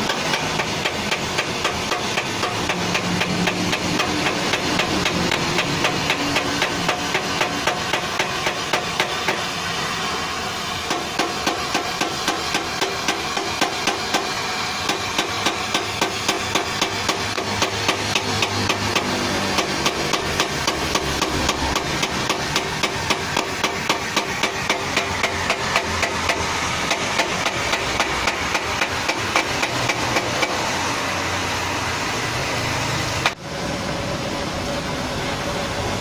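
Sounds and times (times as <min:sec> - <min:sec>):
steady background noise: 0:00.0 - 0:36.0
sharp knocking: 0:14.9 - 0:30.6.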